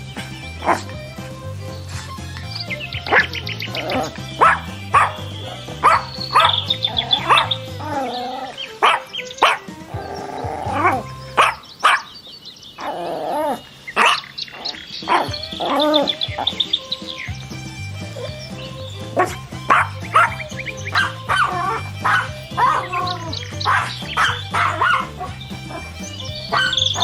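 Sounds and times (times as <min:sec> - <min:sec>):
music with low beat: 0:00.0 - 0:08.1, 0:15.2 - 0:27.0
high bird chirps: 0:01.7 - 0:27.0
dog barking: 0:04.4 - 0:07.5, 0:08.8 - 0:09.7, 0:10.7 - 0:12.2, 0:14.0 - 0:15.4, 0:19.2 - 0:27.0.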